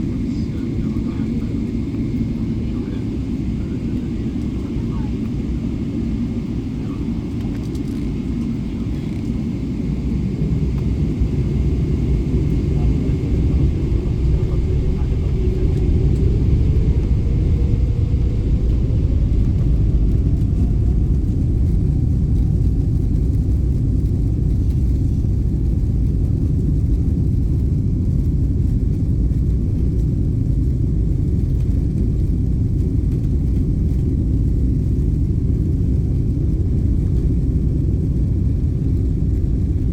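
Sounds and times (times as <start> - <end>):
rising engine whine: 0.0 - 25.0
jet engines rumbling: 0.0 - 39.9.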